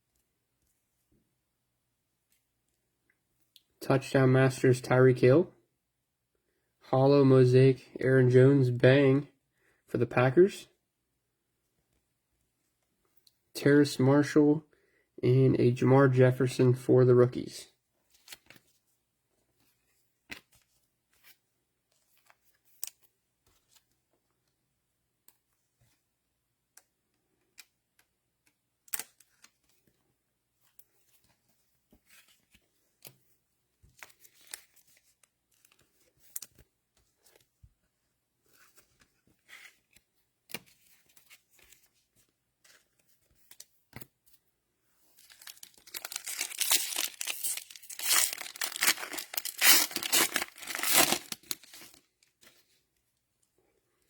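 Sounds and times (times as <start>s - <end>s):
cellophane wrapper crinkling and tearing: 45.2s - 52.3s.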